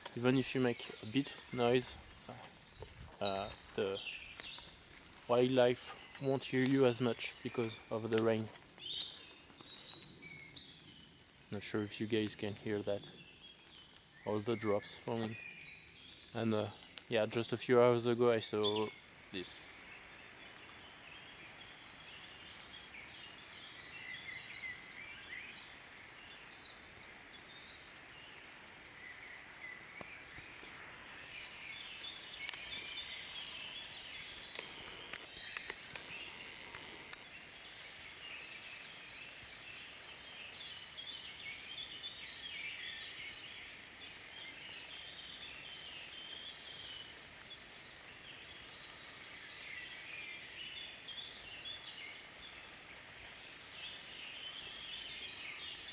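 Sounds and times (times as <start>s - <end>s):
drops pattering from leaves: 0.0s - 19.8s, 29.9s - 38.2s
birds chirping: 0.0s - 55.9s.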